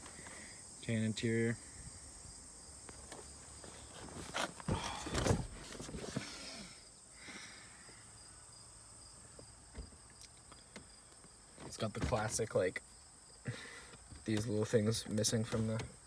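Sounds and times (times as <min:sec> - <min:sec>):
crickets chirping: 0:00.0 - 0:16.0
knocks and rustling: 0:02.9 - 0:06.3.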